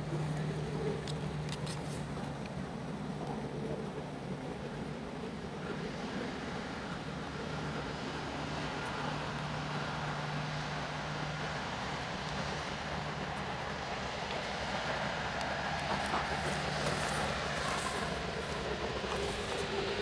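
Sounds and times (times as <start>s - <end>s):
jet engines rumbling: 15.8s - 20.0s.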